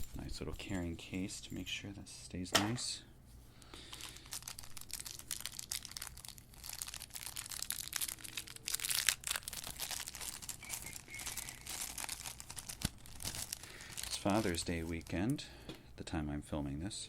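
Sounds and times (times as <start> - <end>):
packaging crinkling: 3.8 - 15.4.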